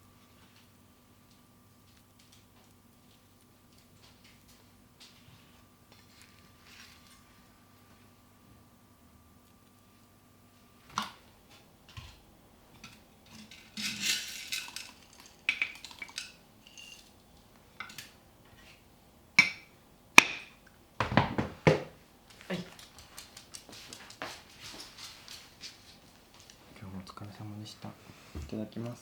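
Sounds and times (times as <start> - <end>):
dishes and cutlery clinking: 12.8 - 17.1, 17.8 - 18.2.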